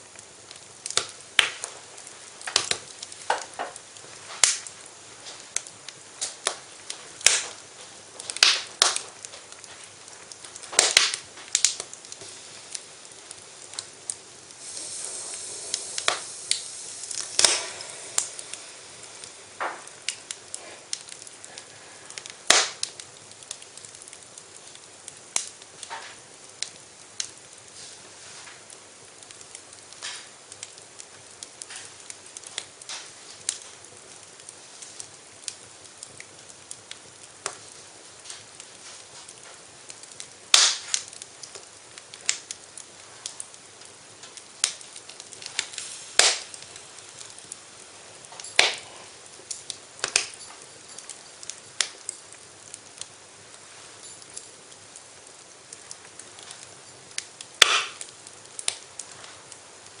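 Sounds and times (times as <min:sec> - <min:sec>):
faint steady hiss: 0:00.0 - 1:00.0
wood fire crackling and popping: 0:00.0 - 1:00.0.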